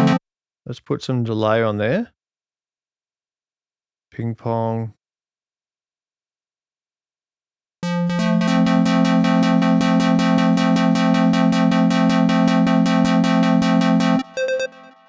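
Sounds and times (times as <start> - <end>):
pulsing square-wave synth note: 0.0 - 0.2, 7.8 - 15.0.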